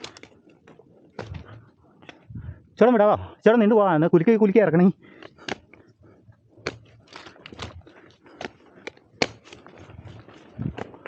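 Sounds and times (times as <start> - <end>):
branches and dry leaves rustling: 5.0 - 11.0.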